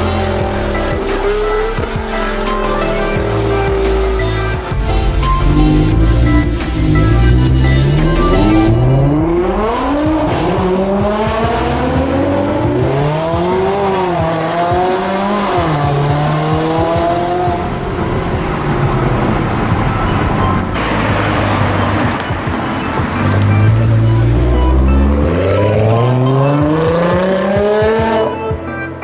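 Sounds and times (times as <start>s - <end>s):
sports car engine accelerating: 0.0s - 22.3s, 23.1s - 28.3s.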